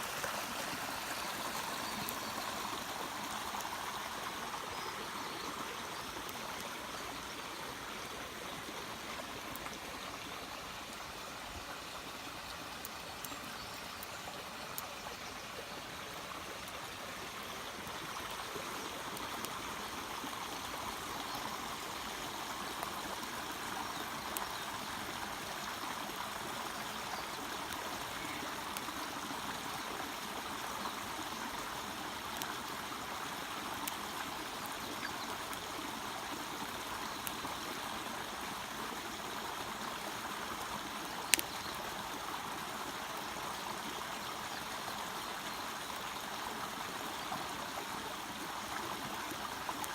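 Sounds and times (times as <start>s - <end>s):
stream water rushing: 0.0s - 49.9s
faint ticks: 33.8s - 36.2s, 41.0s - 41.9s.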